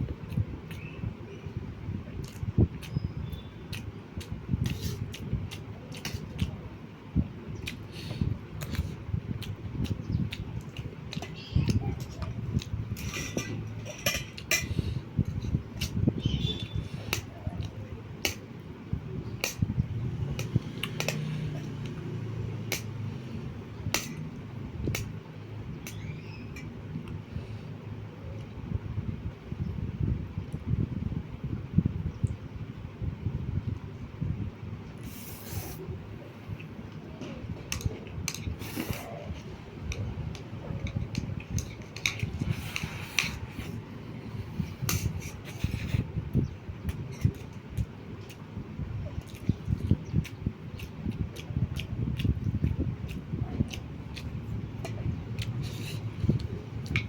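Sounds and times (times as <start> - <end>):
chewing and mouth sounds: 2.1 - 6.7, 7.6 - 18.5, 19.1 - 25.2, 36.5 - 57.0
utensil clicking against plate: 20.4 - 21.2.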